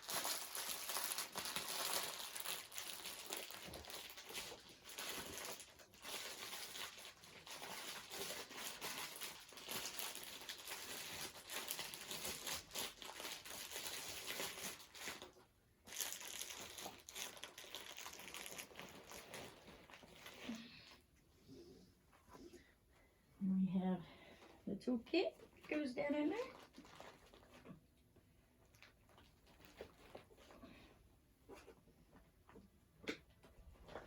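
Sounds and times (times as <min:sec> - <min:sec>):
plastic bags crinkling: 0:00.0 - 0:21.0, 0:25.6 - 0:27.9.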